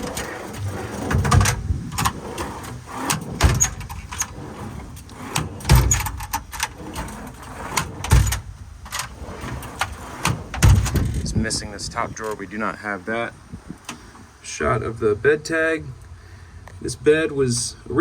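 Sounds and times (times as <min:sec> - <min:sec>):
drawer clunk: 0:00.0 - 0:11.2
metal drawers sliding: 0:00.0 - 0:12.5
rattles and clicks: 0:00.0 - 0:12.5.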